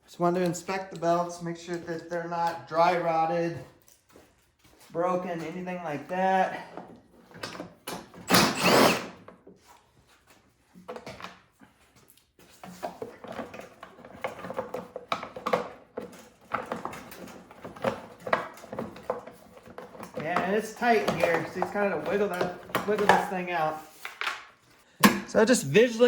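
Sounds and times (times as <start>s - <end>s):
parts clicking and rattling: 12.6s - 25.3s.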